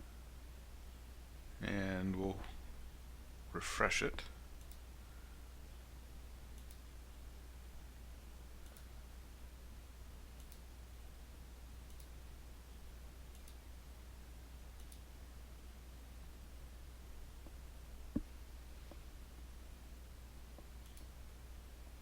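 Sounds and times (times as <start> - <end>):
low steady hum: 0.0 - 22.0
computer mouse clicks: 4.6 - 4.8, 6.5 - 6.9, 8.6 - 8.9, 10.4 - 10.7, 11.9 - 12.2, 13.3 - 13.6, 14.8 - 15.1, 20.8 - 21.2.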